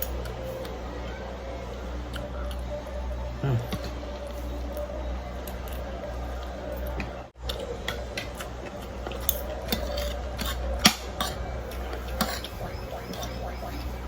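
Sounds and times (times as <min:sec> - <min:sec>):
steady low hum: 0:00.0 - 0:14.0
cutlery clinking against dishes: 0:09.1 - 0:11.4, 0:12.1 - 0:12.6.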